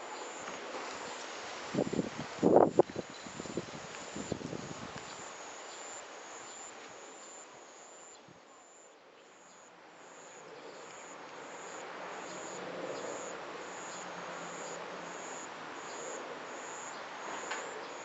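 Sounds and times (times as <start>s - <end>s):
insect chirping: 0.1s - 18.0s.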